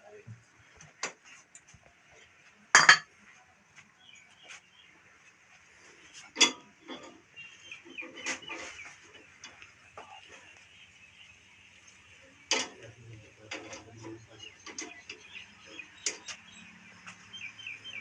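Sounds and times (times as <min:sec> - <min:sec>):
chickens clucking: 0:04.3 - 0:18.0.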